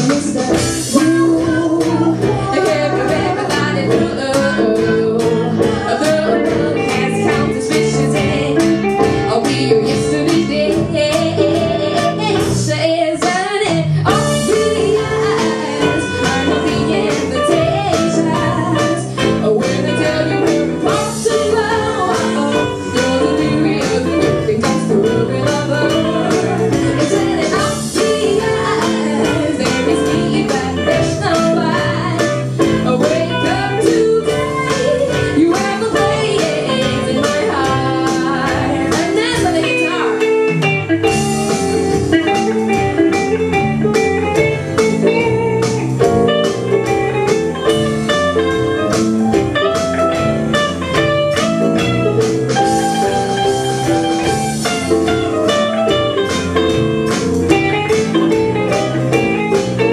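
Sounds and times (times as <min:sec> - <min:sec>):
bass guitar: 0:00.0 - 0:59.9
steady drum beat: 0:00.0 - 0:59.9
lead guitar melody: 0:36.0 - 0:59.9.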